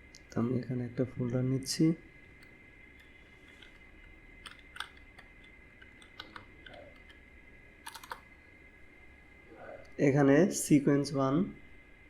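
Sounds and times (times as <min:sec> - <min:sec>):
mouse and keyboard clicks: 0:04.4 - 0:07.2, 0:07.8 - 0:08.2.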